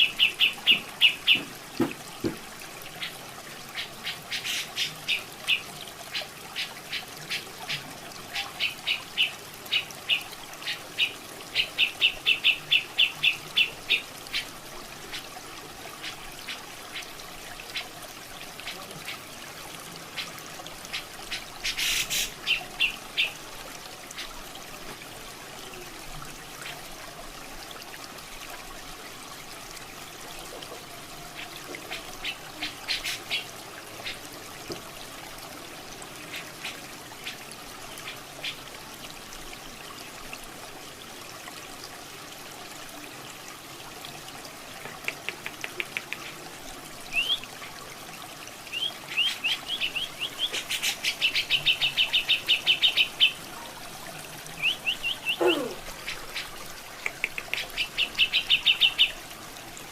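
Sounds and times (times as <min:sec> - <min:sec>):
running water trickling: 0:00.0 - 0:59.9.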